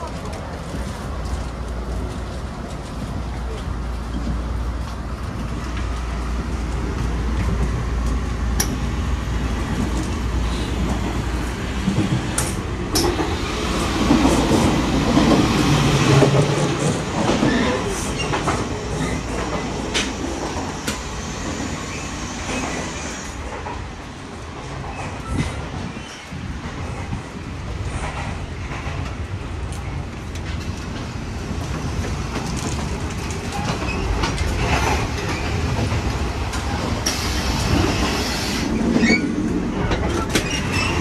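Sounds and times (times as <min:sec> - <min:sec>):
train rumbling on rails: 0:00.0 - 0:41.0.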